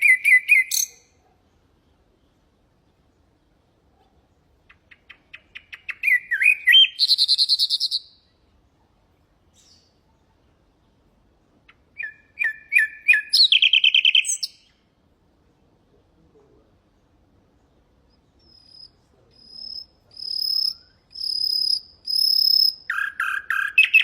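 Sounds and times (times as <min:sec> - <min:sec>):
nightingale singing: 0:00.0 - 0:01.3, 0:04.3 - 0:08.4, 0:09.4 - 0:11.0, 0:11.6 - 0:14.9, 0:17.6 - 0:24.0.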